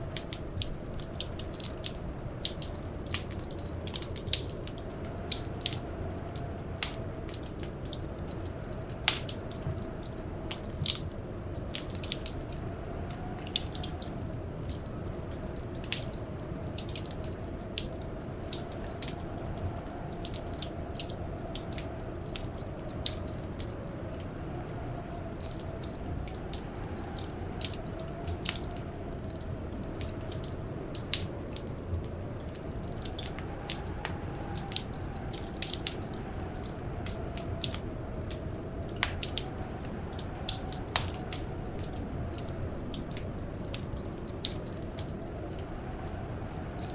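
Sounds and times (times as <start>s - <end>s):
whistling blizzard wind: 0.0s - 46.9s
wood fire crackling: 0.0s - 46.9s
fire pops: 35.6s - 45.5s.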